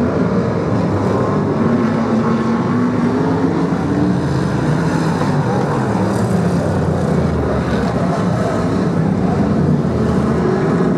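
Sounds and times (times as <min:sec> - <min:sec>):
racing car engines running: 0:00.0 - 0:10.9.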